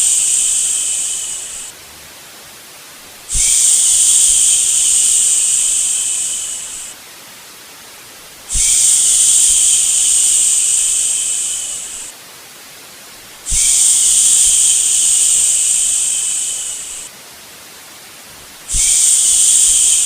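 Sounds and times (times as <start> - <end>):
person shushing: 0.0 - 1.7, 3.3 - 7.0, 8.5 - 12.1, 13.5 - 17.1, 18.7 - 20.0
faint steady hiss: 0.0 - 20.0.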